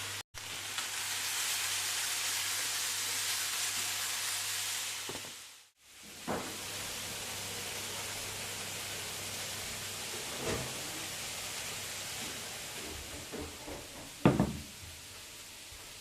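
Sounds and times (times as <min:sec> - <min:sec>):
steady hiss: 0:00.0 - 0:16.0
soft knock: 0:14.0 - 0:14.6.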